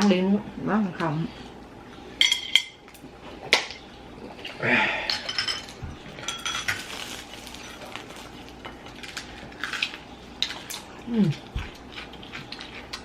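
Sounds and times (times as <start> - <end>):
utensils clinking on plates: 2.2 - 2.8, 5.0 - 8.0.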